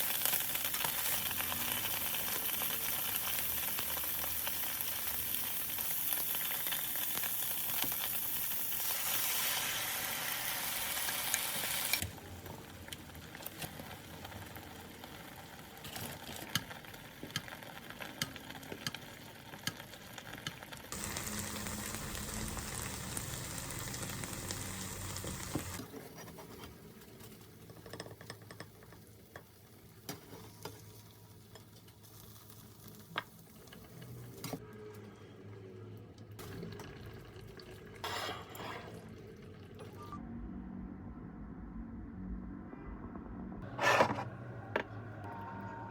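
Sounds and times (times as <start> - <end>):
food sizzling in a pan: 0.0 - 12.0, 14.4 - 25.9.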